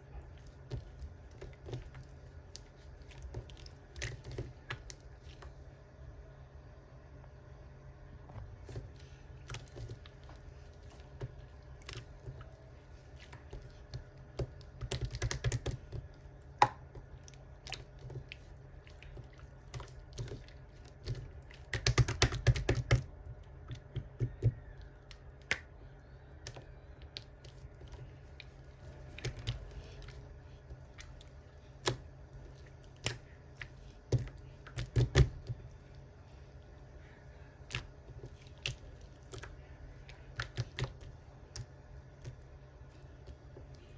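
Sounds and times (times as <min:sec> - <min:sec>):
low steady hum: 0:00.0 - 0:43.9.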